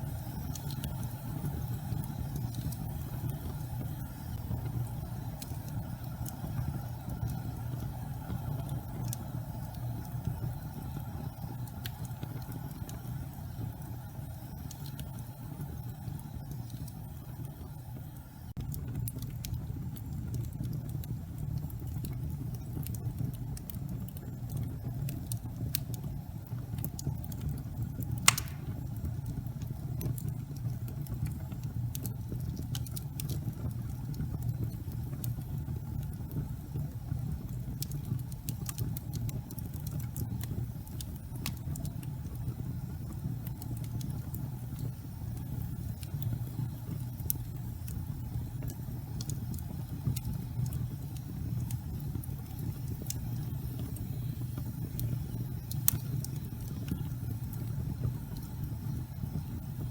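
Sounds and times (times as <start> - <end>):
fire crackling: 0.0 - 59.9
fireplace flames burning: 0.0 - 59.9
fire sharp pop: 28.2 - 29.0.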